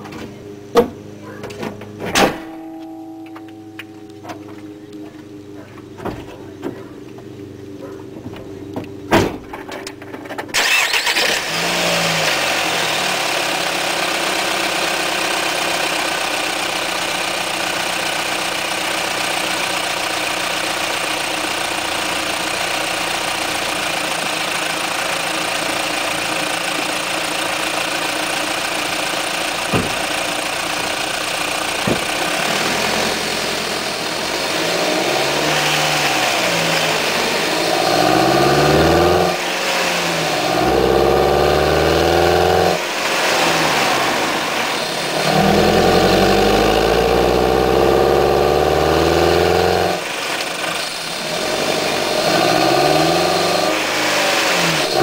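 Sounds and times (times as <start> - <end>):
car engine starting and idling: 0.0 - 55.0
engine revving in blips: 31.7 - 55.0.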